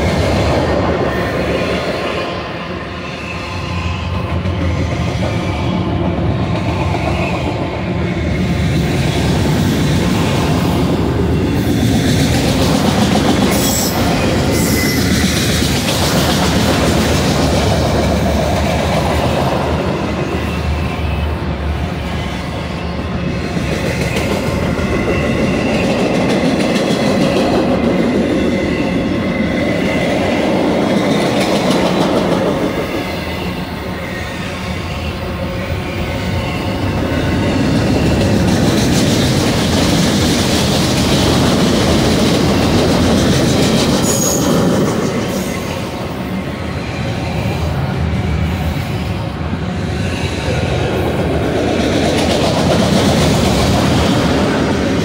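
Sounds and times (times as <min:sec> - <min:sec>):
freight cars rumbling on rails: 0:00.0 - 0:55.0
high wheel squeal: 0:13.4 - 0:15.6, 0:43.9 - 0:47.9.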